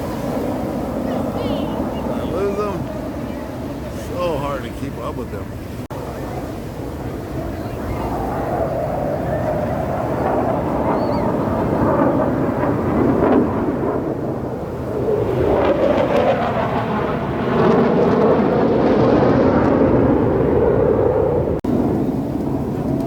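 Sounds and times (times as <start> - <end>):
jet aircraft rumble: 0.0 - 23.0.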